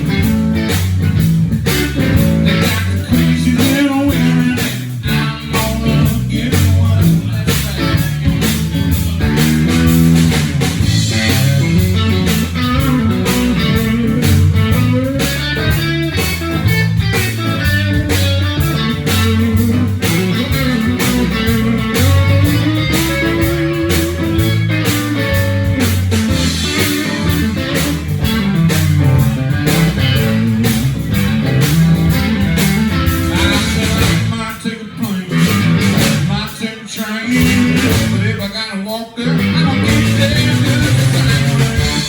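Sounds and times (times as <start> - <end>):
bass guitar: 0.0 - 38.6, 39.2 - 42.0
drums with steady beat: 0.0 - 42.0
electric guitar solo: 11.1 - 34.1.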